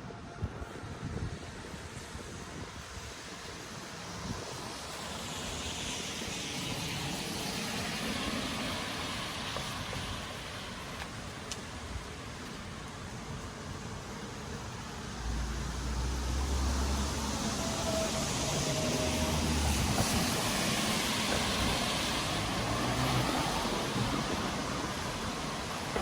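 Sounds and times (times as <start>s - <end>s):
tyre hiss on wet road: 0.4s - 26.0s
rain falling: 3.2s - 26.0s.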